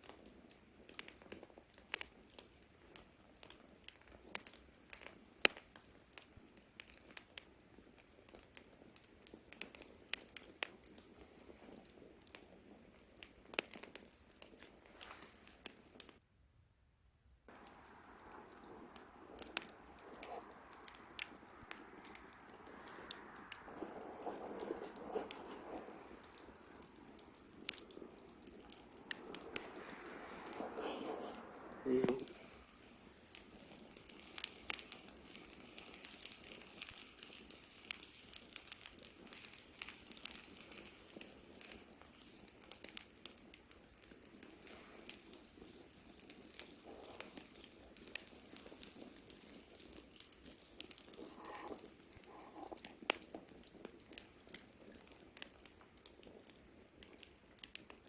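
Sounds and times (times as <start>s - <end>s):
campfire crackling and popping: 0.0s - 16.2s, 17.5s - 58.0s
soft steady rushing noise: 17.5s - 36.2s.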